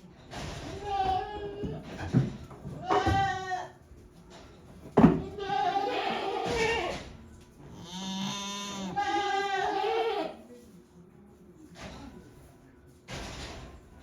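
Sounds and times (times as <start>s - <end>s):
goats bleating: 2.8s - 3.8s, 5.2s - 7.0s, 7.8s - 10.4s.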